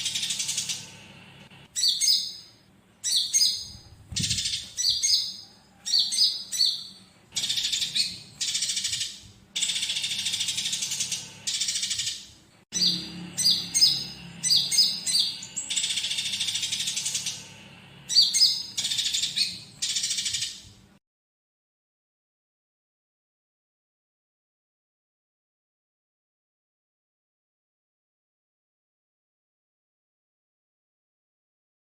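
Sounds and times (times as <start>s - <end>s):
high sharp bird chirps: 0.0s - 1.0s, 1.6s - 20.7s
sparrows rapid chattering: 0.0s - 20.7s.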